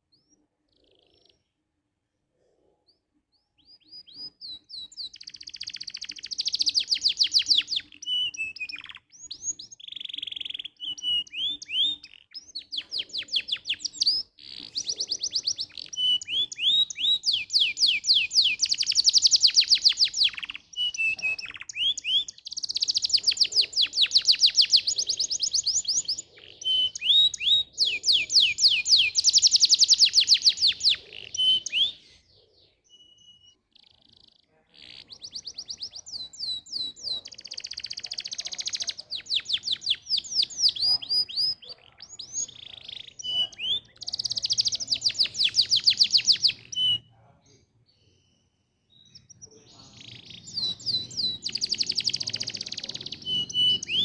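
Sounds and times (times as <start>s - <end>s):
canary singing trills: 0.0s - 1.6s, 2.8s - 54.0s.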